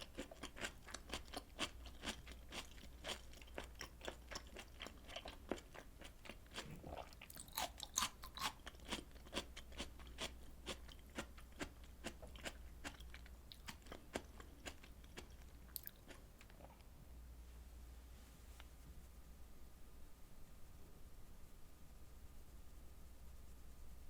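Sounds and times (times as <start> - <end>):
wet chewing and mouth clicks: 0.0 - 16.9.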